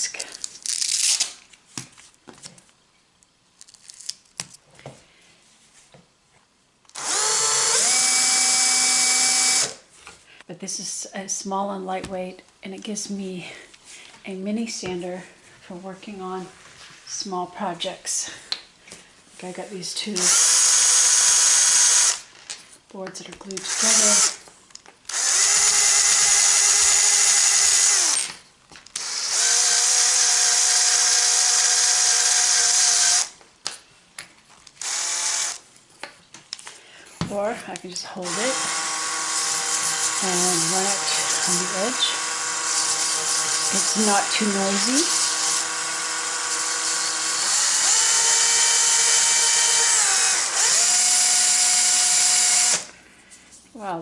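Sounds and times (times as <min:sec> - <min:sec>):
drill motor whining: 0:06.9 - 0:09.8, 0:20.2 - 0:22.3, 0:23.6 - 0:24.4, 0:25.1 - 0:28.3, 0:29.0 - 0:33.3, 0:34.8 - 0:35.6, 0:38.2 - 0:52.9.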